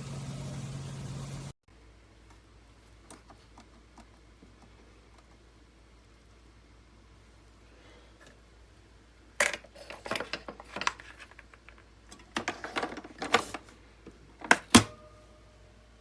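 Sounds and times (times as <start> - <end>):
sharp clicks and knocks: 14.1 - 15.1.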